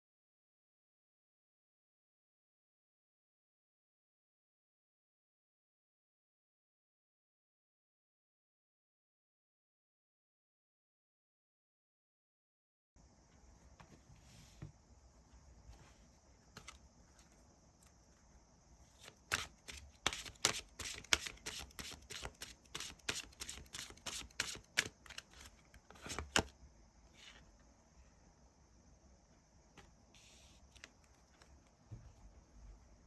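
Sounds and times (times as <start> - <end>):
faint high hiss: 13.0 - 33.0
cards being shuffled: 19.0 - 26.5.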